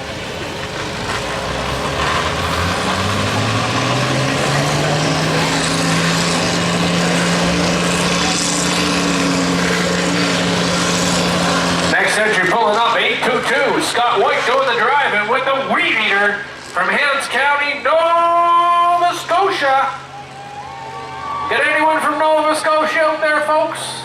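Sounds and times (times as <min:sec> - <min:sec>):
lawn tractor engine approaching: 0:00.0 - 0:24.0.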